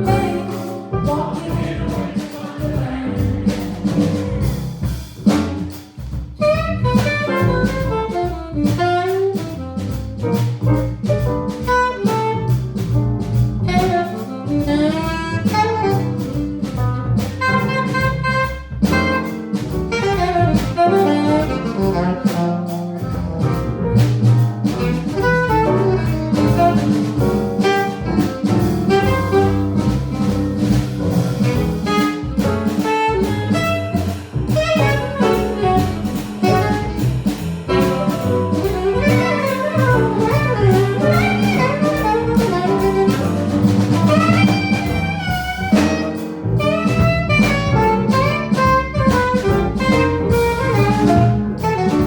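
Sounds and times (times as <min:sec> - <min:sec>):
saxophone playing fast lines: 0:00.0 - 0:02.4, 0:06.4 - 0:09.6, 0:13.7 - 0:16.3, 0:17.4 - 0:22.4, 0:25.0 - 0:30.3, 0:31.4 - 0:52.0
drum kit with cymbals: 0:00.0 - 0:52.0
piano: 0:00.0 - 0:52.0
walking double bass: 0:00.0 - 0:52.0.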